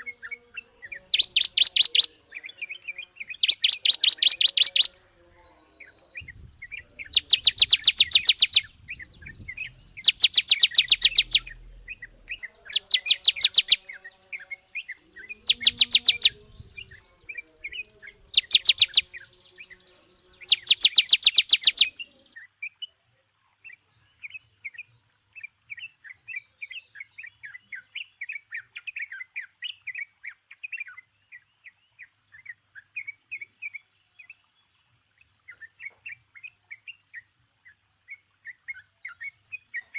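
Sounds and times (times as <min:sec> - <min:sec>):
loud fast bird trill: 0:00.0 - 0:05.0, 0:06.2 - 0:22.1
birds chattering chirps: 0:00.0 - 0:39.9.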